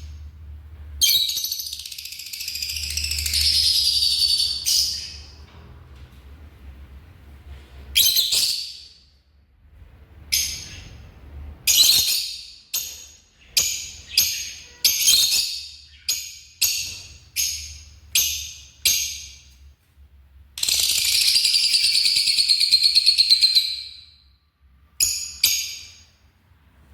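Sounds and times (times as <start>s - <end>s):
shrill bird calls: 1.0s - 5.4s, 8.0s - 9.0s, 20.6s - 24.2s.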